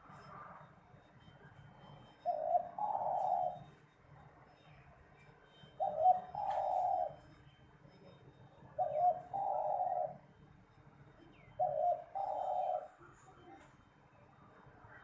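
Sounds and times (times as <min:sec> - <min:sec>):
dove cooing: 0:02.2 - 0:03.8, 0:05.7 - 0:07.3, 0:08.7 - 0:10.3, 0:11.4 - 0:13.4.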